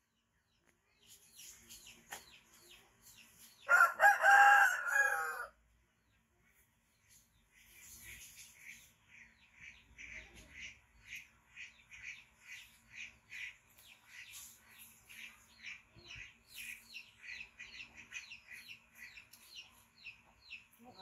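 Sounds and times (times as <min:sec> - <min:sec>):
faint bird chirping: 0:00.0 - 0:03.8, 0:06.0 - 0:21.0.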